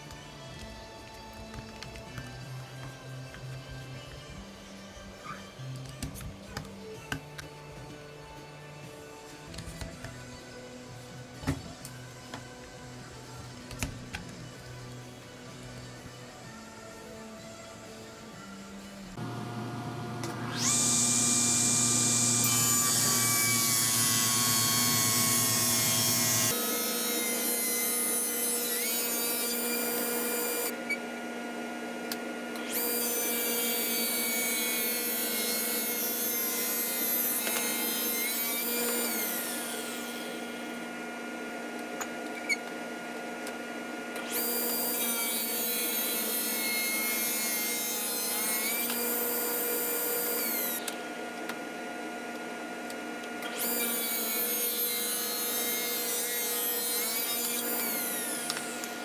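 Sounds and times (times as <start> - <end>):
electric power tool humming: 19.2 - 51.3, 52.9 - 59.0.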